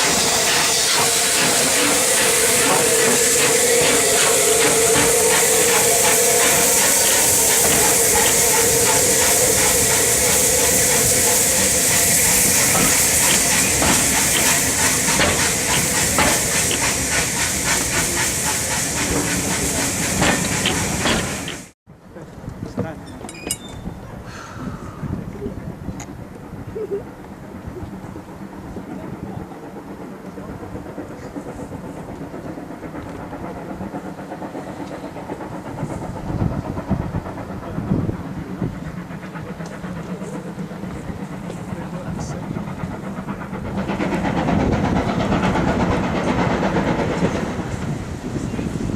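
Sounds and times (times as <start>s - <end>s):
steam hissing: 0.0s - 21.8s, 27.6s - 48.9s.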